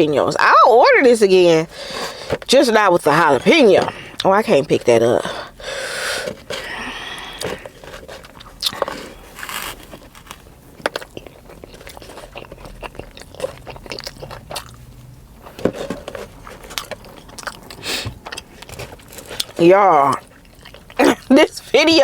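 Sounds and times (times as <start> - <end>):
short breaths: 1.7 - 2.4, 5.2 - 8.0, 17.7 - 18.2
chewing and crunching food: 5.4 - 22.0.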